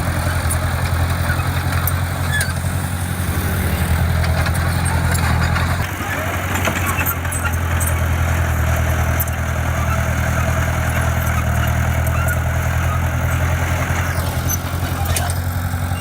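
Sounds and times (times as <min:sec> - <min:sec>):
diesel engine running low: 0:00.0 - 0:16.0.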